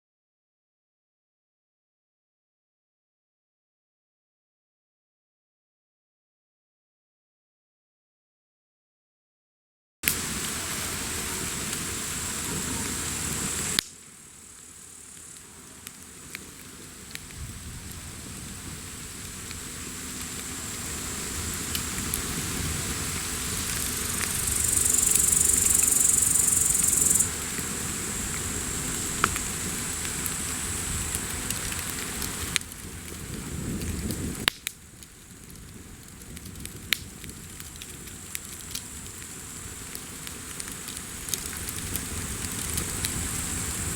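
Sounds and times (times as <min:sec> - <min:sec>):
high hiss: 0:10.0 - 0:33.8, 0:37.3 - 0:43.9
wood bonfire crackling: 0:10.0 - 0:43.9.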